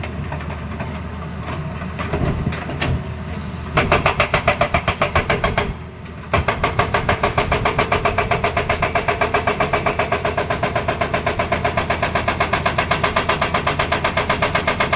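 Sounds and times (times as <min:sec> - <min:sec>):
hydraulic rock breaker hammering: 0:03.7 - 0:14.9.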